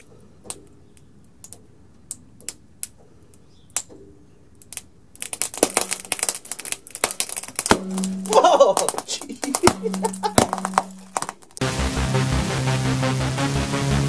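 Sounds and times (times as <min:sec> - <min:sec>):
plastic creaking and crackling: 0:04.6 - 0:11.6.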